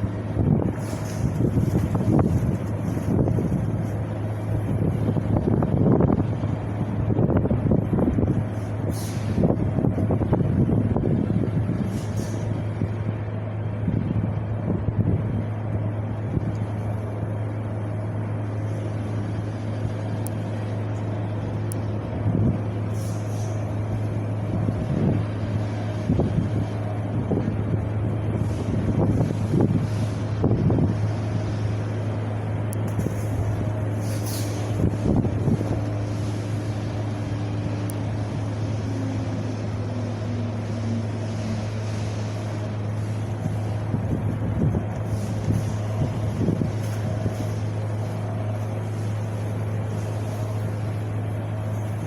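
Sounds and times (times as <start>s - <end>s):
wind blowing: 0.0s - 20.6s, 21.2s - 52.0s
constant low rumble: 0.0s - 52.0s
wind gusting on microphone: 0.0s - 52.0s.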